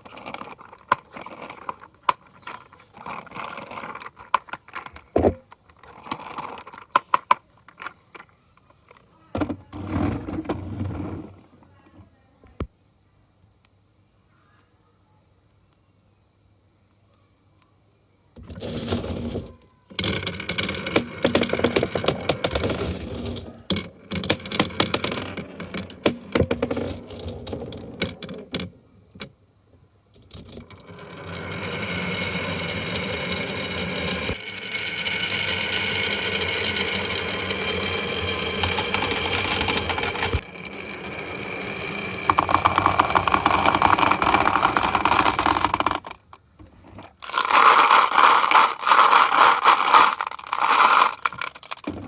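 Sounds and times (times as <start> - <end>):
marbles clattering and rolling: 0.0 - 8.3, 18.4 - 28.8, 30.2 - 52.0.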